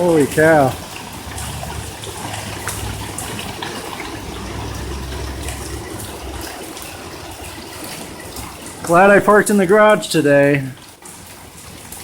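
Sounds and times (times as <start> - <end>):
hail pelting down: 0.0 - 12.0
low rumble: 0.8 - 8.3.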